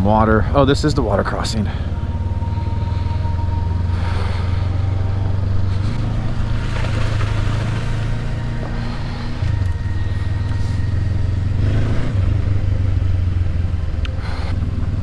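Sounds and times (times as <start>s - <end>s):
motorcycle engine riding along: 0.0s - 15.0s.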